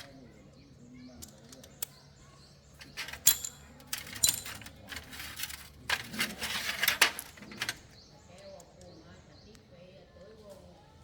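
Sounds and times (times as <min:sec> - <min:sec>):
small metal objects clinking: 0:02.8 - 0:07.9.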